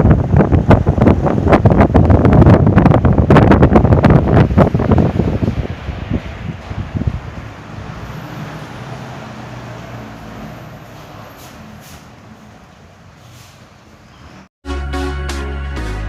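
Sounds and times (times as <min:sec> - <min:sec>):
fan airflow rushing: 0:00.0 - 0:12.3.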